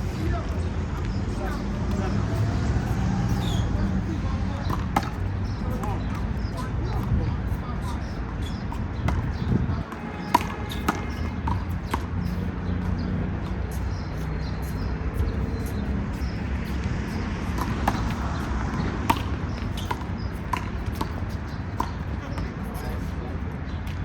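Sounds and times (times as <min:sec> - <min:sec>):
handball smacking hand and wall: 0:10.2 - 0:12.0.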